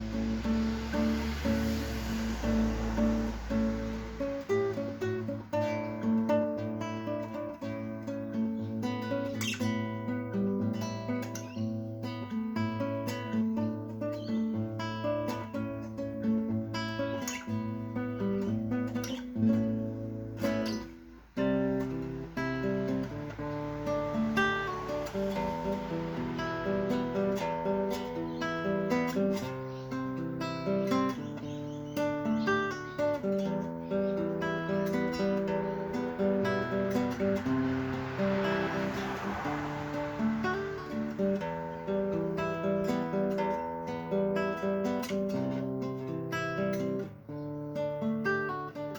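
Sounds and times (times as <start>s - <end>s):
acoustic guitar music: 0.0s - 48.9s.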